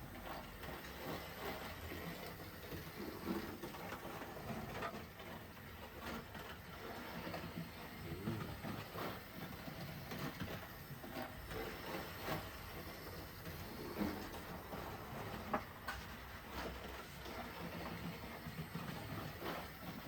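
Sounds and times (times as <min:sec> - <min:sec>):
model train running: 0:00.0 - 0:20.0.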